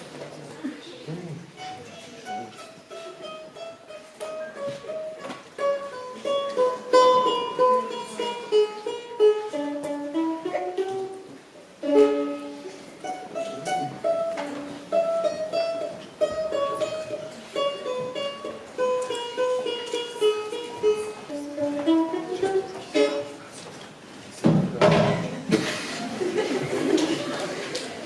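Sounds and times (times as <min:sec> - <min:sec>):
balalaika plucked melody: 0:01.6 - 0:23.5.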